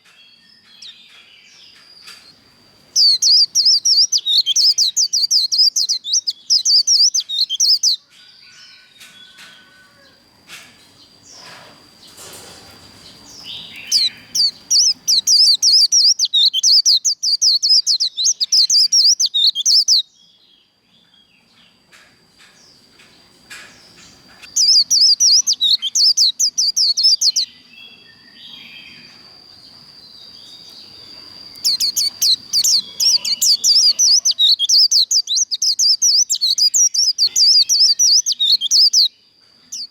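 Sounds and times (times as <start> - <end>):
bird twittering song: 0.0 - 10.2, 11.0 - 39.9
faint steady high tone: 24.3 - 39.9.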